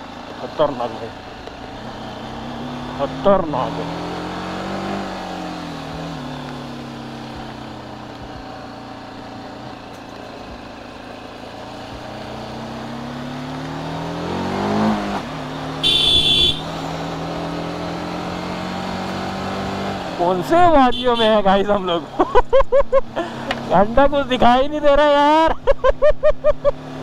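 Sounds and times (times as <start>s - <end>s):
motorcycle engine: 0.0s - 27.0s
motorcycle horn: 15.8s - 16.8s, 20.8s - 21.5s.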